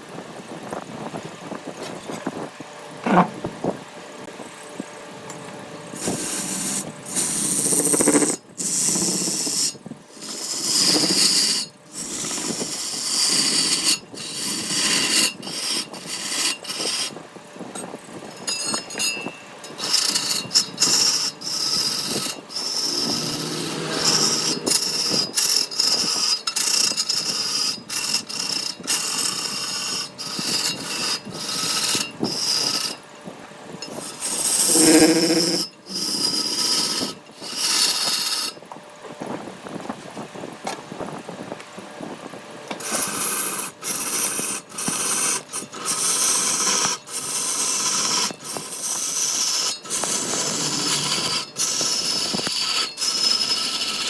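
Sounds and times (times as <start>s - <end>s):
power tools working wood: 3.0s - 3.5s, 5.3s - 17.2s, 17.8s - 33.0s, 33.8s - 38.6s, 42.7s - 54.0s.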